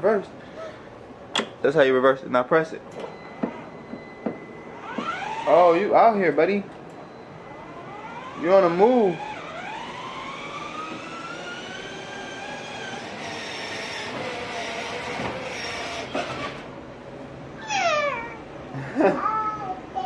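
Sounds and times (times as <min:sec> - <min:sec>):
small motor whining: 0:04.8 - 0:05.9, 0:07.5 - 0:16.7.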